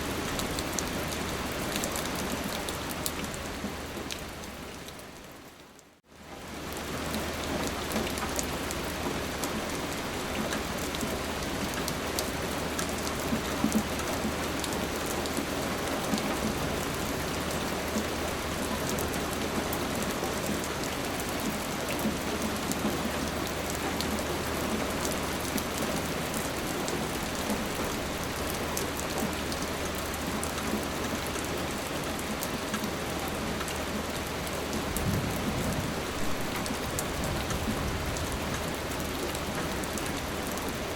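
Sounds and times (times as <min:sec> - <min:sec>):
steady rain hissing: 0:00.0 - 0:40.9
rain drop ticks: 0:32.3 - 0:32.9.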